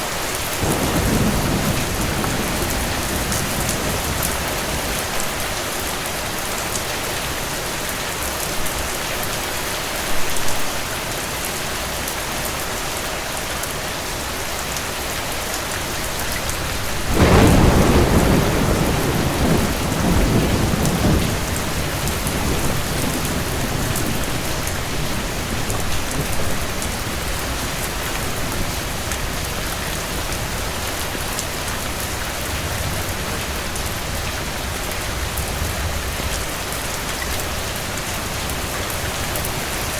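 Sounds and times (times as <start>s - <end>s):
steady rain falling: 0.0s - 39.9s
thunder clap rolling: 0.6s - 5.6s, 16.7s - 29.6s.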